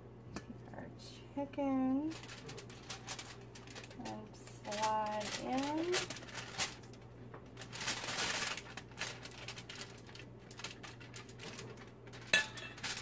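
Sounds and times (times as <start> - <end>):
aluminium foil crinkling: 1.7 - 13.0.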